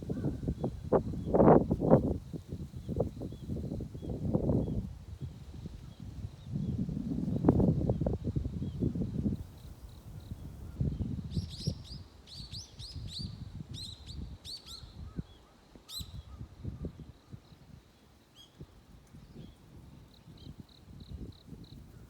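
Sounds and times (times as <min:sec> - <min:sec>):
small songbird chirping: 0:07.4 - 0:22.0.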